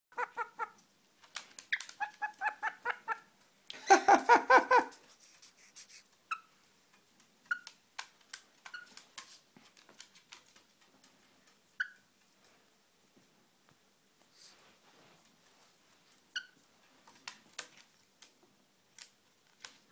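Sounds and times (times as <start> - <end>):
parrot pulsed laughing calls: 0.1 - 0.8, 2.0 - 5.0
parrot chirps and clicks: 0.1 - 3.3, 7.4 - 9.0, 11.8 - 12.1.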